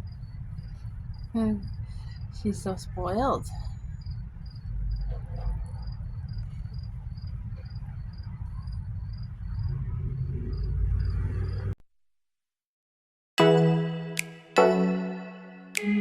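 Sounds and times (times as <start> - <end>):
crickets chirping: 0.0 - 11.8
low rumble: 0.0 - 11.8.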